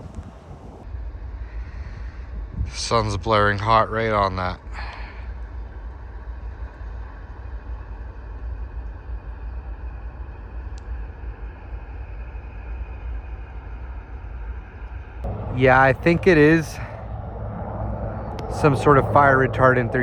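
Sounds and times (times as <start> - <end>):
distant engine rumble: 0.0 - 2.6, 15.2 - 20.0.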